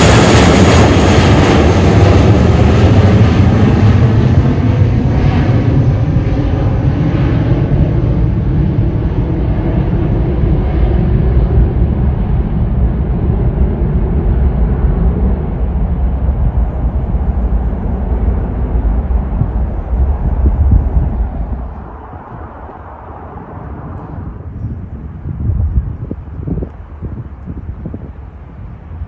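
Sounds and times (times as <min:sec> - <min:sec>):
jet engines roaring: 0:00.0 - 0:29.0.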